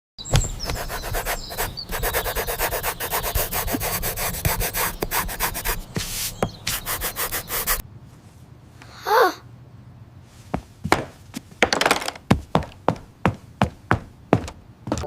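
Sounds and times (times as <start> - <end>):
rapid rhythmic scraping strokes: 0.7 - 7.8.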